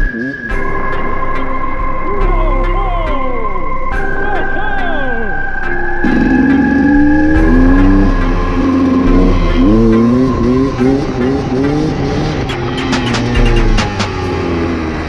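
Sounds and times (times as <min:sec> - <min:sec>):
dirt bike engine revving: 0:06.0 - 0:15.0.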